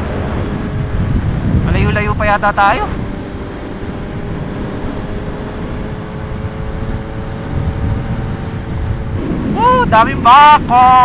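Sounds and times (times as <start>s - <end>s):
motorcycle engine cruising: 0.0s - 11.0s
wind rush on microphone: 0.0s - 11.0s.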